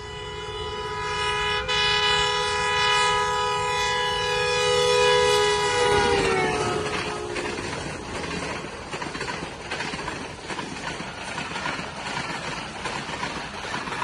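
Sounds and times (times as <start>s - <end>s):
locomotive horn blast: 0.0s - 7.8s
rumble of passing train coaches: 0.0s - 14.0s.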